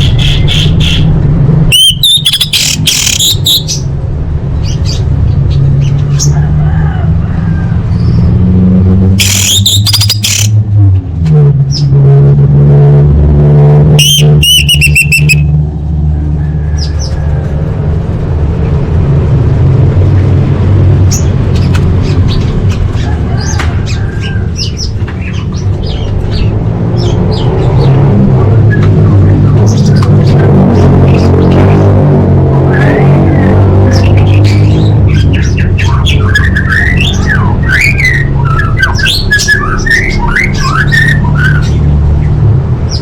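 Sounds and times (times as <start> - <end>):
thrush chirping: 1.7 - 3.9, 14.0 - 15.5.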